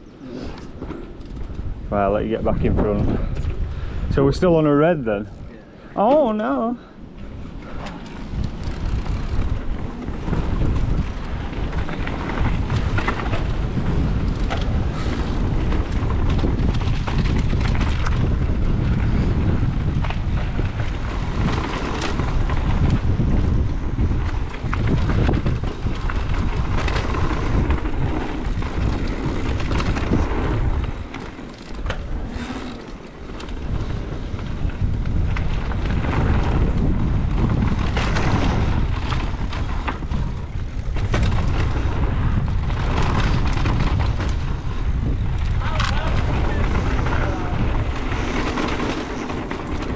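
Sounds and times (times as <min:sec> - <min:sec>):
wind buffeting microphone: 0:00.0 - 0:49.9
bike clattering over bumps: 0:07.2 - 0:49.9
tyre noise: 0:07.3 - 0:23.0, 0:24.4 - 0:35.2.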